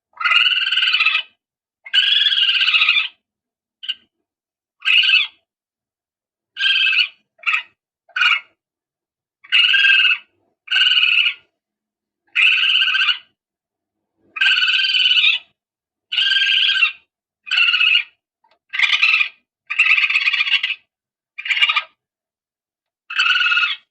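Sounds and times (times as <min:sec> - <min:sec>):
croaky raspy animal calls: 0:00.1 - 0:03.2, 0:04.8 - 0:05.4, 0:06.6 - 0:08.6, 0:09.4 - 0:11.5, 0:12.3 - 0:13.4, 0:14.3 - 0:22.0, 0:23.1 - 0:23.9.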